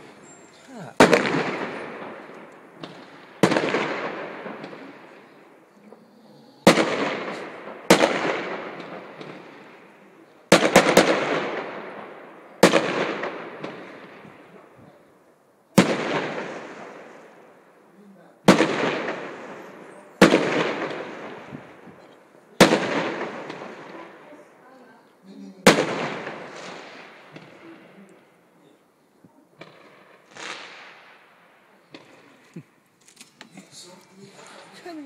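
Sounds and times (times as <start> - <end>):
fireworks bangs: 0.0 - 28.9, 29.5 - 35.0.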